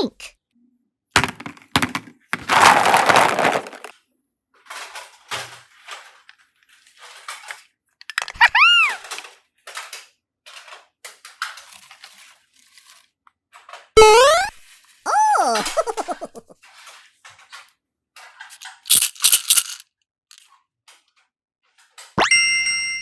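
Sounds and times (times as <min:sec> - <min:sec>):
cartoon whistle effect: 0:08.4 - 0:09.0, 0:14.0 - 0:16.4, 0:22.2 - 0:22.4.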